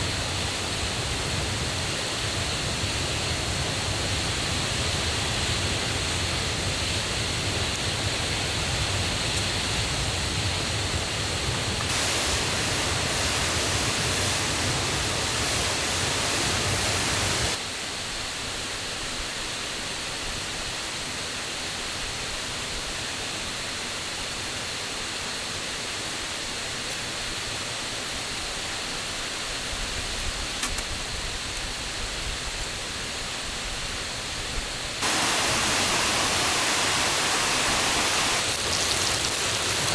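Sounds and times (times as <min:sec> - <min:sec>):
waterfall and stream rushing: 0:10.9 - 0:17.7, 0:35.0 - 0:39.9.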